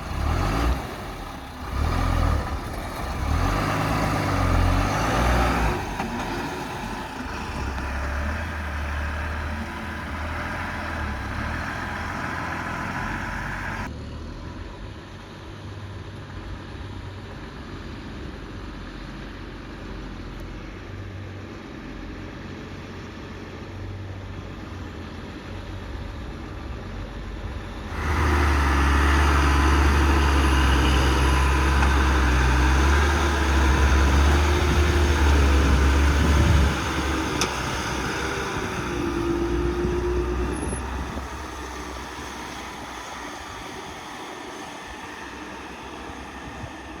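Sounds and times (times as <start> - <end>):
heavy diesel engine running: 0.0 - 19.8, 24.4 - 47.0
wavering engine whine: 27.8 - 47.0.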